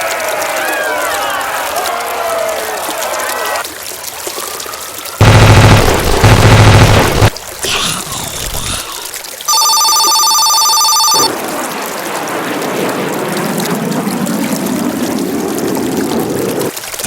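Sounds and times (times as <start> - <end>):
electronic ringing tone: 9.5 - 11.3.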